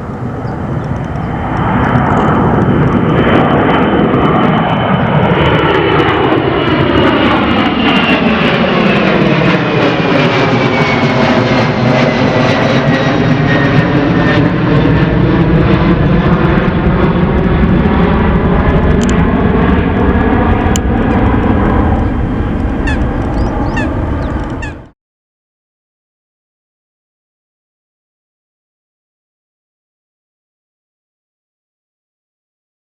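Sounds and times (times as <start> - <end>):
jet engines at takeoff power: 0.0 - 25.0.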